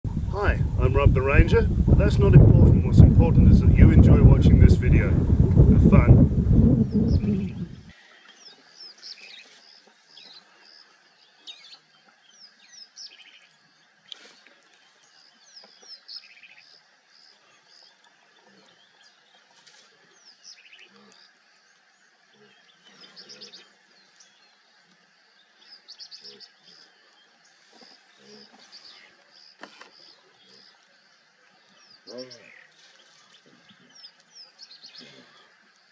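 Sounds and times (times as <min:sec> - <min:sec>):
soft low rustles: 0:00.1 - 0:07.9
birds chirping and whistling: 0:05.9 - 0:07.9.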